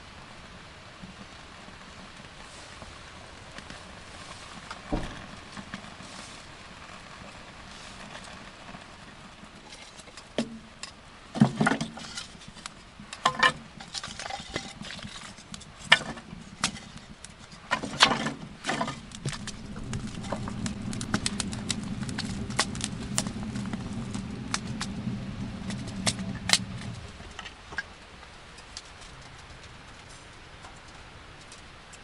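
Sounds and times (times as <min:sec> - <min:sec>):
knocks and clatters: 0:04.8 - 0:05.8.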